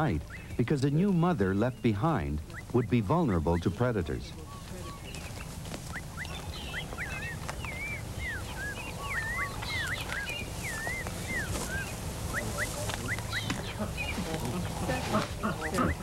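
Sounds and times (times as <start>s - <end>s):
birds whistling: 0.0s - 16.0s.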